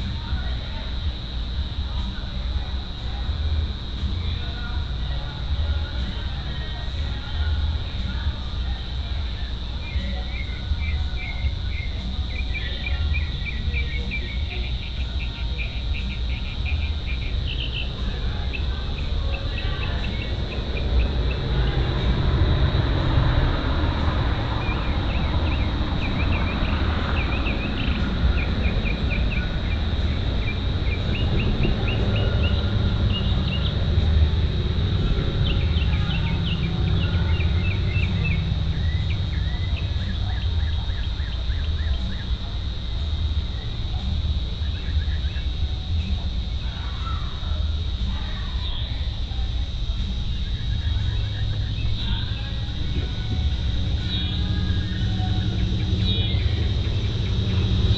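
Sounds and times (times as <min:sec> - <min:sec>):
birds chirping: 0:00.0 - 0:57.9
crickets trilling: 0:00.0 - 0:57.9
low rumble: 0:49.8 - 0:57.9.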